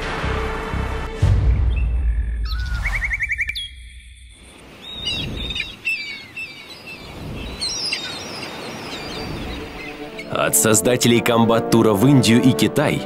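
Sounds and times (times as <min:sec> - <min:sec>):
birds chirping: 0:01.7 - 0:10.8.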